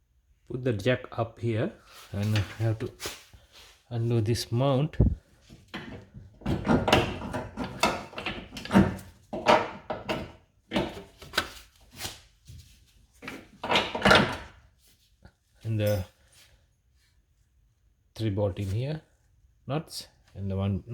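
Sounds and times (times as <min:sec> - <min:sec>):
jack clunking and scraping: 0:05.5 - 0:11.2.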